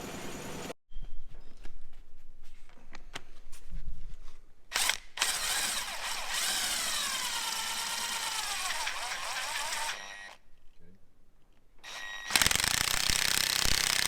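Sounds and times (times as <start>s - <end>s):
power tool whining: 4.7s - 10.4s, 11.8s - 14.0s.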